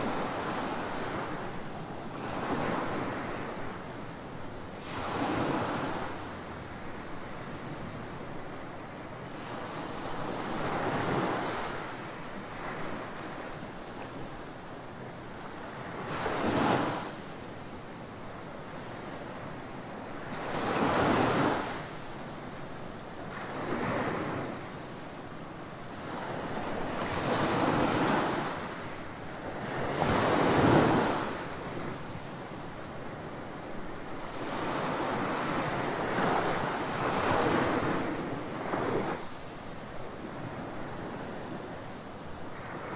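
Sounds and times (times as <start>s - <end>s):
ocean waves breaking on beach: 0.0s - 42.9s.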